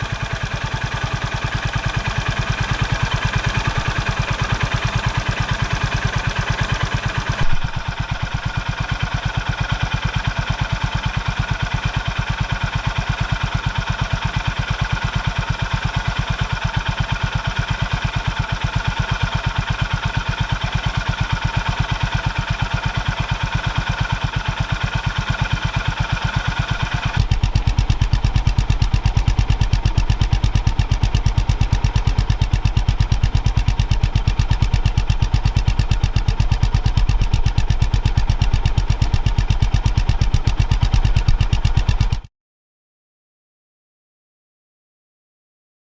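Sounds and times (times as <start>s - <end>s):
motorcycle engine idling: 0.0s - 42.3s.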